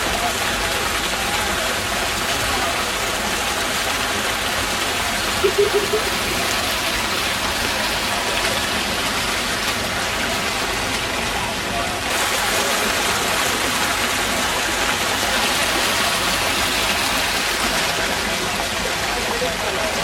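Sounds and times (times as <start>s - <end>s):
heavy rain and rushing floodwater: 0.0s - 20.0s
pitched pulses: 5.4s - 6.6s.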